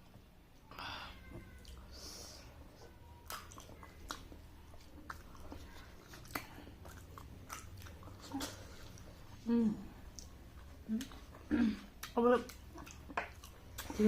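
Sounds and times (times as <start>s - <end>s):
chewing with mouth smacks: 2.8s - 9.4s, 10.0s - 14.0s.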